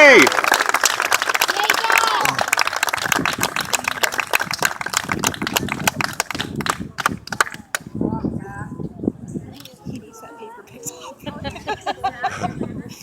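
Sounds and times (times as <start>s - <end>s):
audience applause: 0.0s - 7.8s
voices talking: 5.8s - 13.0s.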